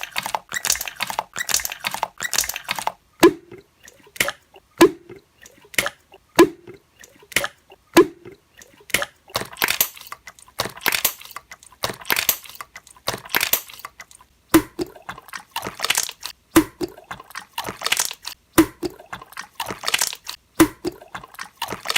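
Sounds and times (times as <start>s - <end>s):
wet slime squishing: 0.0s - 21.9s
slime air bubbles popping: 14.6s - 21.9s.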